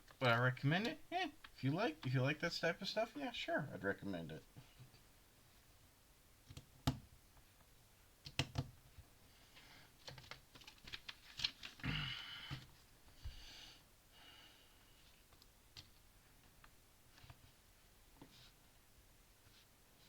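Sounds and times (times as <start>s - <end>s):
rustling: 9.3s - 11.8s.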